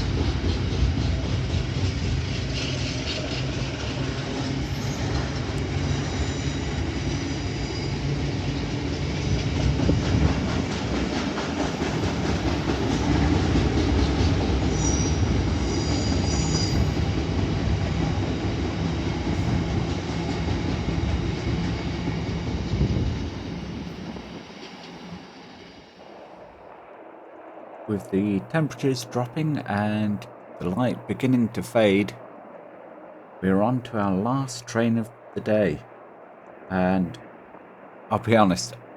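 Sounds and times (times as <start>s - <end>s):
train wheels rumbling on rails: 0.0s - 26.0s
high-pitched wheel squeals: 4.4s - 8.4s, 14.7s - 17.1s.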